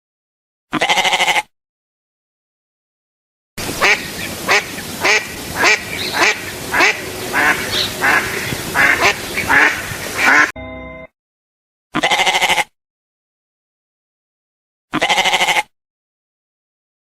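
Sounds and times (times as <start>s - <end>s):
bird quacking calls: 3.8s - 10.5s, 15.0s - 15.7s.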